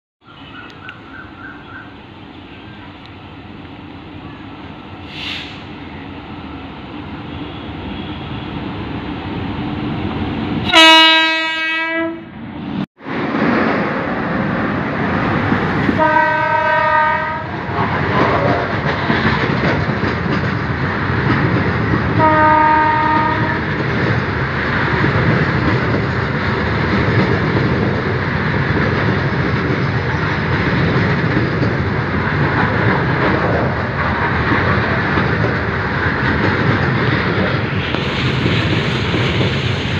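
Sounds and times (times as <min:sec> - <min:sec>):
train rumbling past: 0:00.2 - 0:39.9
train horn blasts: 0:07.3 - 0:08.5, 0:10.6 - 0:12.3, 0:16.0 - 0:17.5, 0:22.2 - 0:23.7
coaches clattering on rails: 0:17.3 - 0:39.9.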